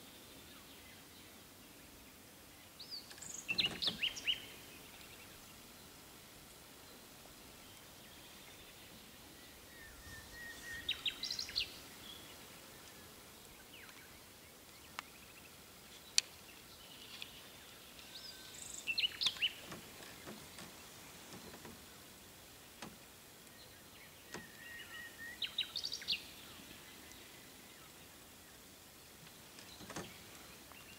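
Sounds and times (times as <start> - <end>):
faint steady hiss: 0.0 - 30.9
songbird singing: 0.0 - 30.9.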